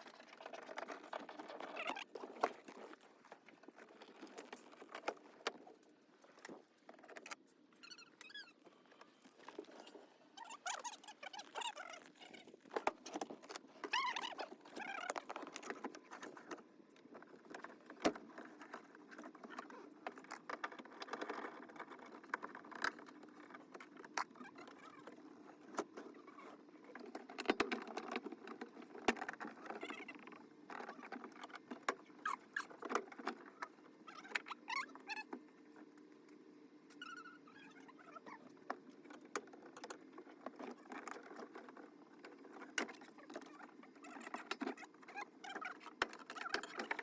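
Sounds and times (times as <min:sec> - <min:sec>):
brief squeaks: 0:07.7 - 0:12.6.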